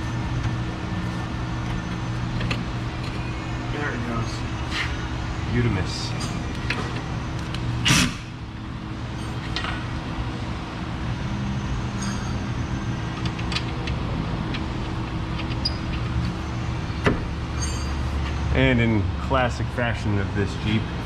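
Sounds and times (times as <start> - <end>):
steady shop hum: 0.0 - 21.0
metal clinks and knocks: 17.5 - 18.0.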